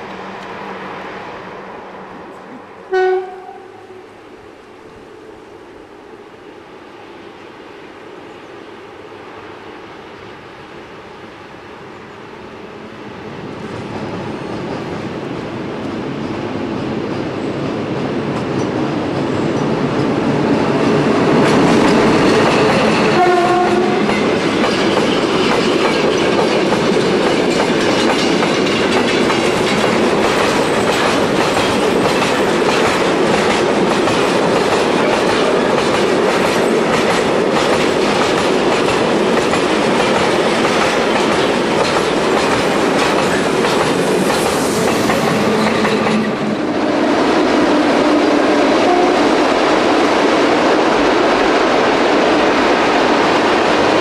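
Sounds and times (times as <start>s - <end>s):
train horn blast: 2.8s - 4.1s, 23.1s - 24.2s, 47.7s - 49.4s
freight train rumbling and clattering: 13.0s - 54.0s
wheels clacking on rail joints: 20.8s - 46.6s.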